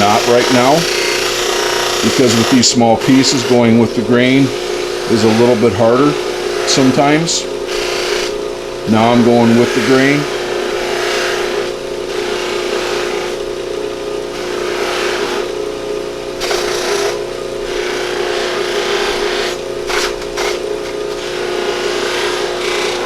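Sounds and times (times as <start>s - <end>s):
antler rubbing on buffing wheel: 0.0s - 8.3s, 8.9s - 13.4s, 14.3s - 15.5s, 21.2s - 23.0s
buffer motor humming: 0.0s - 23.0s.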